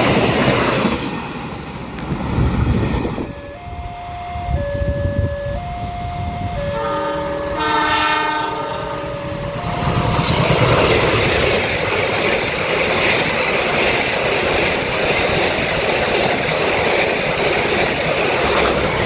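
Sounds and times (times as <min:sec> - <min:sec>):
passing train rushing: 0:00.0 - 0:19.0
two-tone warning signal: 0:03.2 - 0:11.6
train horn blast: 0:03.3 - 0:10.8
wheels clattering over rail joints: 0:09.6 - 0:19.0.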